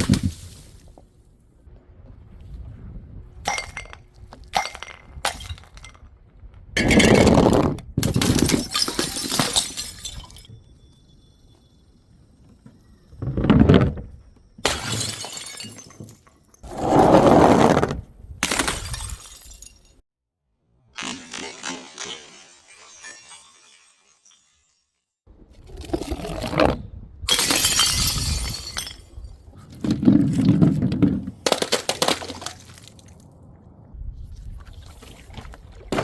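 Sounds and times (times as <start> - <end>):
glass bottles shattering: 3.5 - 6.1, 8.0 - 10.5, 14.6 - 16.6, 18.4 - 20.0, 27.3 - 29.4, 31.4 - 33.1.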